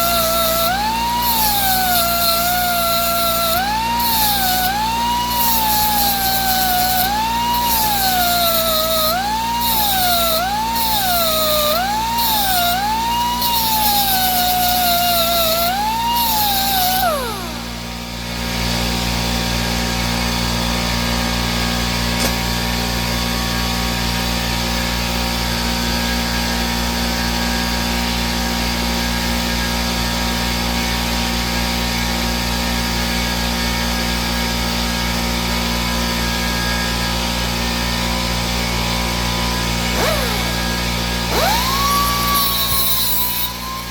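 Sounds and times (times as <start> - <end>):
die grinder whining on metal: 0.0 - 22.6, 35.2 - 43.9.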